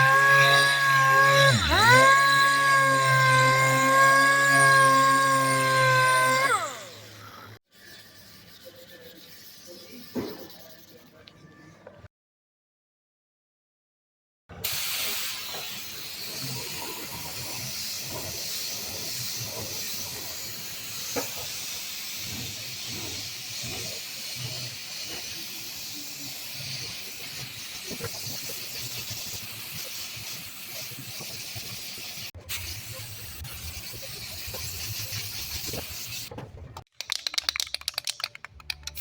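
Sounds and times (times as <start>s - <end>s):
paint spray gun hissing: 14.6s - 36.3s.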